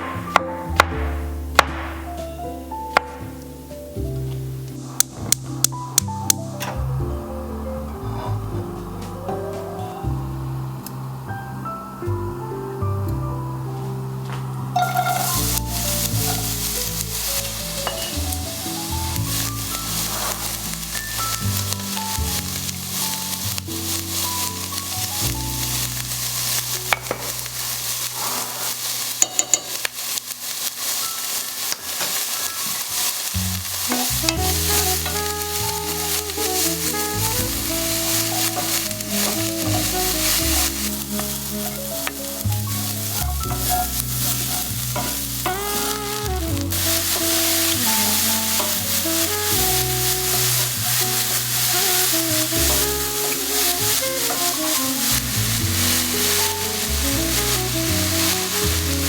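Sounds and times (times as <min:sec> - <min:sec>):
utensil knocks: 0:00.0 - 0:02.4
food sizzling in a pan: 0:00.0 - 0:06.9, 0:14.2 - 0:59.0
soft background music: 0:00.0 - 0:29.2, 0:33.4 - 0:59.0.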